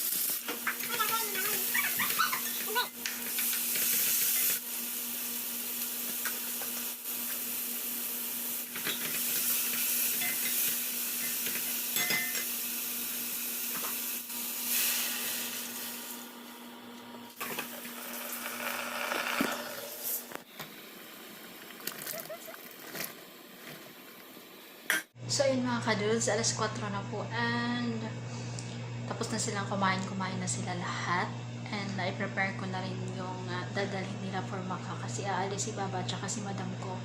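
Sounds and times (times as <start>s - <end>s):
food sizzling in a pan: 0.0s - 16.4s.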